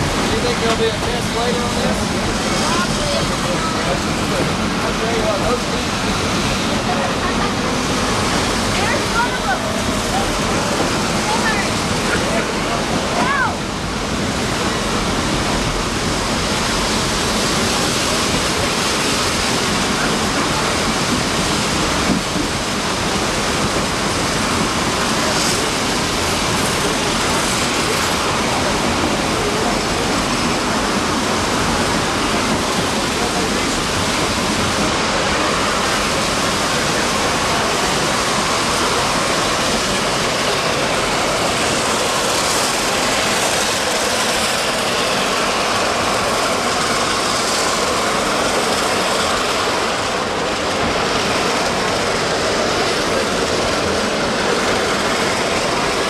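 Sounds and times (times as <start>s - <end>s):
stream water rushing: 0.0s - 15.2s
train running: 0.0s - 56.0s.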